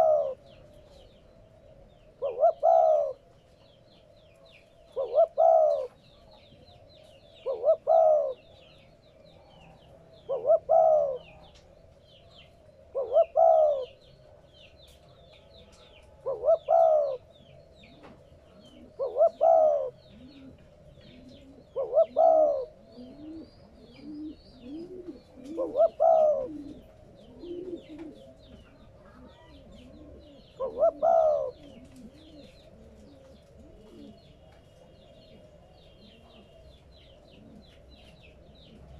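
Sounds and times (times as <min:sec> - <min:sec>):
dove cooing: 0:00.0 - 0:03.5, 0:04.3 - 0:38.9
small birds chirping: 0:00.0 - 0:38.9
softer lower cooing: 0:02.2 - 0:03.2, 0:05.0 - 0:06.0, 0:07.4 - 0:08.4, 0:10.2 - 0:11.5, 0:16.2 - 0:17.3, 0:18.6 - 0:34.3.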